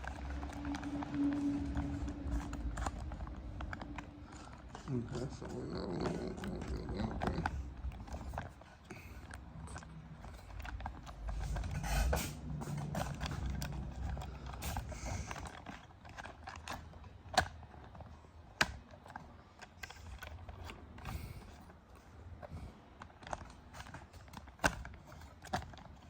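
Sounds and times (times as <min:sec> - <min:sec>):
low rumble: 0:10.4 - 0:15.4.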